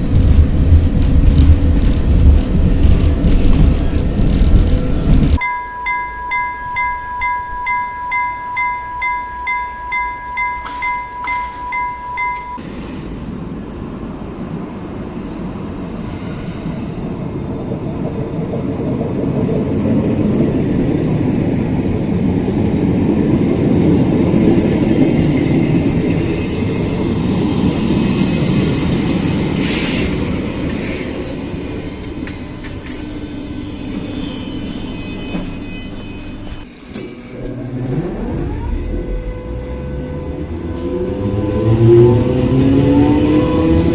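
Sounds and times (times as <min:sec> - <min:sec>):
electric train rumbling on rails: 0:00.0 - 0:43.9
rising motor whine: 0:36.9 - 0:43.9.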